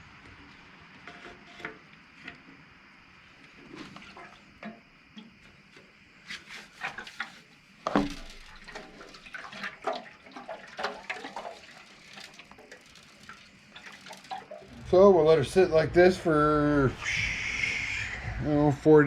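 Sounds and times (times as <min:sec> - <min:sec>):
liquid sloshing in metal tank: 0:03.6 - 0:15.0
metal knocks and clunks: 0:07.9 - 0:09.2.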